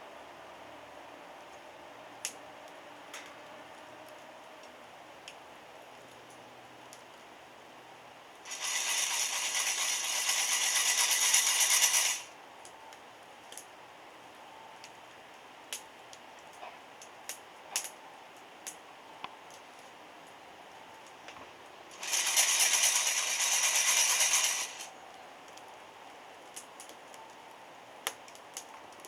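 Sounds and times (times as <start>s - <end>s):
coffee beans rattling in roaster: 8.5s - 12.3s, 21.9s - 24.9s
sharp crackles: 8.5s - 12.3s.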